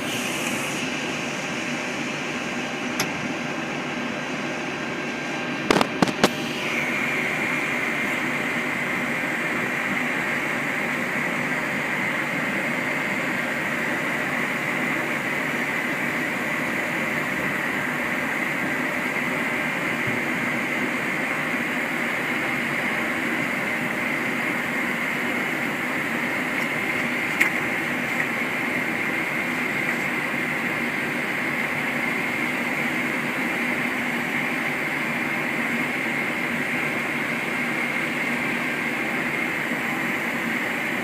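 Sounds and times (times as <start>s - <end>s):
air-conditioning airflow: 0.0s - 41.0s
jet engines idling: 0.0s - 41.0s
single click: 5.7s - 6.4s.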